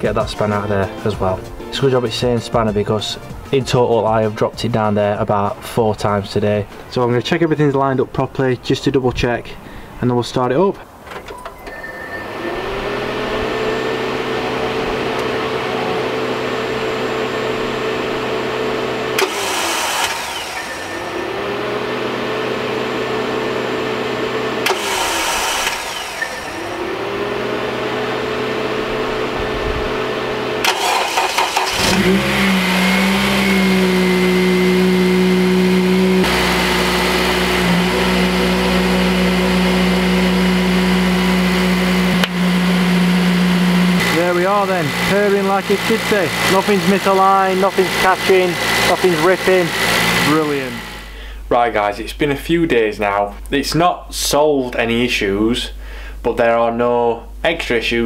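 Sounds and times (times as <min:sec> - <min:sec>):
engine idling: 0:12.6 - 0:51.5
engine cranking: 0:19.1 - 0:21.6, 0:24.6 - 0:27.2, 0:30.6 - 0:51.2.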